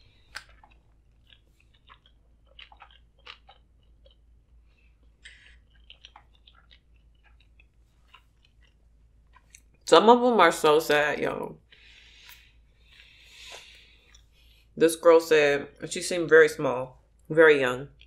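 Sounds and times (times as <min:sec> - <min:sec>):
soft crunches of chewing: 0:00.0 - 0:09.9, 0:11.6 - 0:14.7
wet mouth clicks: 0:00.3 - 0:04.2.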